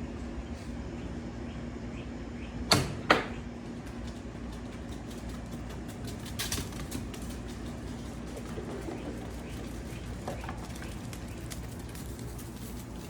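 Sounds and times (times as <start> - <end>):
steady low hum: 0.0 - 13.0
rustling clatter: 3.7 - 13.0.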